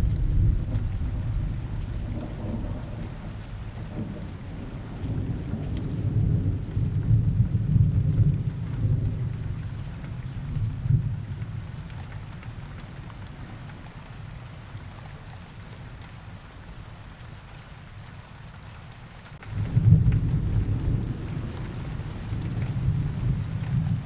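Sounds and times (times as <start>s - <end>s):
low rolling thunder: 0.0s - 12.4s, 19.4s - 24.0s
steady rain: 0.0s - 24.0s.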